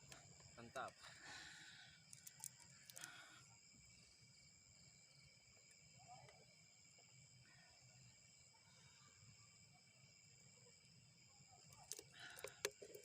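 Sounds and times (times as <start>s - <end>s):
insects shrilling: 0.0s - 4.1s.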